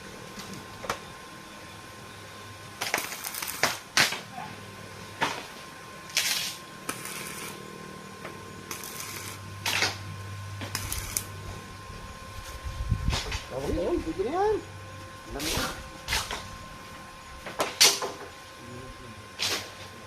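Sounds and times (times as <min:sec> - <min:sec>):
short crackling bursts: 0:02.8 - 0:04.1, 0:06.1 - 0:07.6, 0:08.7 - 0:10.0, 0:10.6 - 0:11.3.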